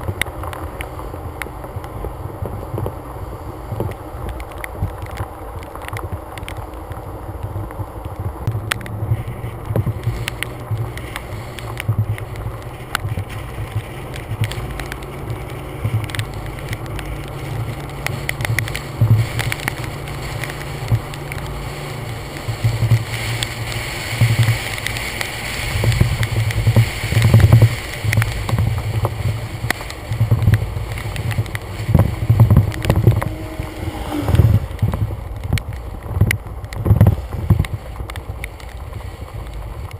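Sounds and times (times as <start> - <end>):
wind buffeting microphone: 0.0 - 39.9
sharp ticks: 7.6 - 38.8.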